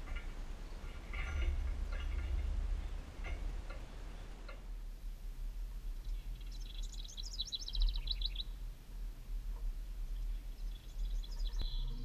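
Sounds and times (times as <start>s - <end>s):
steady low rumble: 0.0s - 12.0s
small bird chirping: 5.9s - 8.6s, 10.1s - 12.0s.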